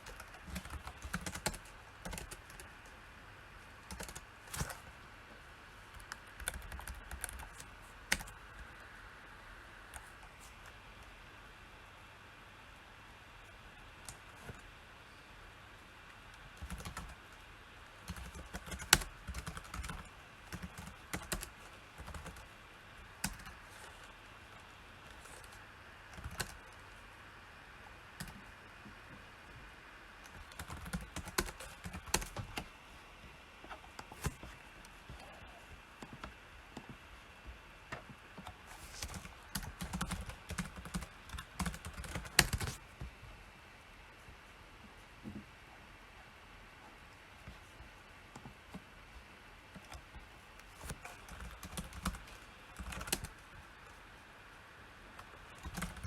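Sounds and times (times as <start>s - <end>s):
typing on computer keyboard: 0.0s - 2.7s, 3.9s - 4.8s, 5.9s - 8.4s, 16.6s - 17.2s, 18.0s - 22.5s, 23.2s - 24.1s, 25.1s - 26.7s, 30.2s - 32.7s, 39.0s - 42.8s, 50.8s - 53.4s, 55.2s - 56.0s.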